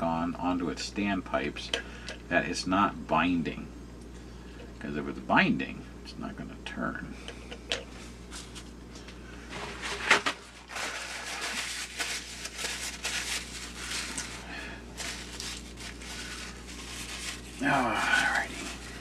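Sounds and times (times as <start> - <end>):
rustling and scraping plastic: 7.4 - 19.0.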